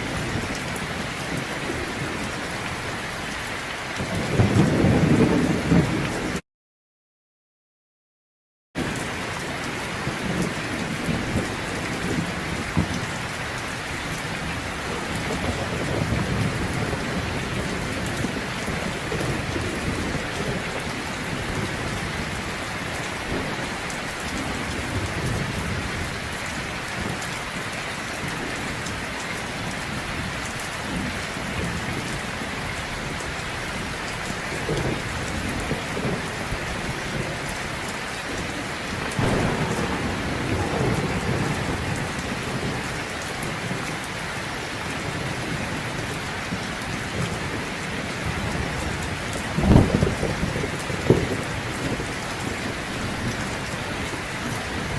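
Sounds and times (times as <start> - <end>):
heavy rain: 0.0 - 6.4, 8.8 - 54.9
low rumbles: 39.1 - 43.0.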